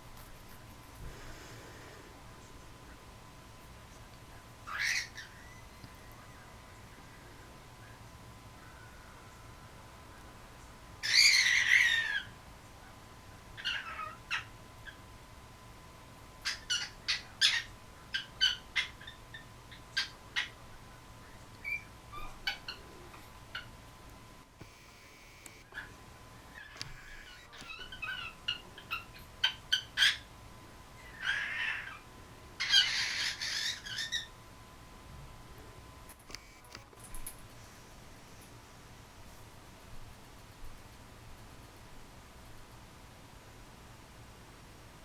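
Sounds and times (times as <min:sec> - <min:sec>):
cockatiel squawk: 0:04.6 - 0:05.6, 0:11.0 - 0:12.4, 0:13.6 - 0:15.0, 0:16.4 - 0:20.6, 0:26.5 - 0:30.3, 0:31.0 - 0:32.0, 0:32.6 - 0:34.3
cockatiel calls: 0:04.6 - 0:06.0, 0:11.0 - 0:12.4, 0:13.6 - 0:15.0, 0:16.4 - 0:20.6, 0:21.6 - 0:23.7, 0:25.7 - 0:30.3, 0:31.0 - 0:32.0, 0:32.6 - 0:34.3
cockatiel chirps: 0:04.7 - 0:06.0, 0:11.0 - 0:12.3, 0:13.6 - 0:15.0, 0:32.6 - 0:34.3.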